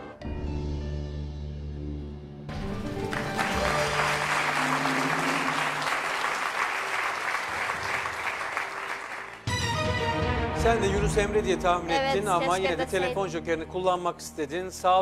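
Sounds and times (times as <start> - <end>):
game show music: 2.5 - 15.0
audience applause: 2.8 - 9.5.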